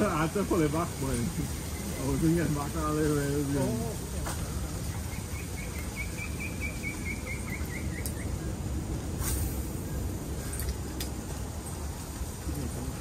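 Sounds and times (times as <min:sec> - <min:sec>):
low outdoor rumble: 0:00.0 - 0:13.0
bird calling repeated notes: 0:04.9 - 0:08.6
faint clicks: 0:10.5 - 0:11.2.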